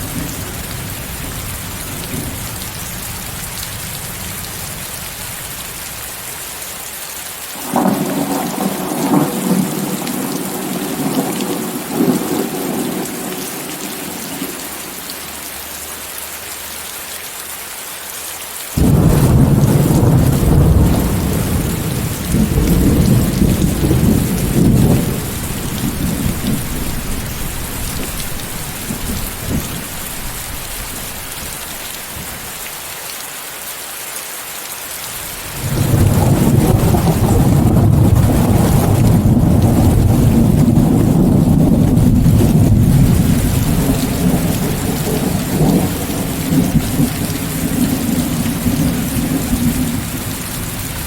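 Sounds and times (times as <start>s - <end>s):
rain hissing: 0.0s - 51.0s
rolling thunder: 7.6s - 14.6s, 18.8s - 31.5s, 35.5s - 51.0s.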